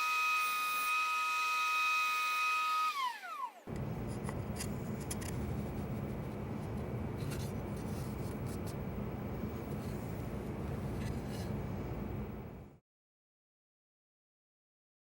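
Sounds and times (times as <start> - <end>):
router whine spinning down: 0.0 - 5.8
light rubbing and clicking: 3.7 - 11.7.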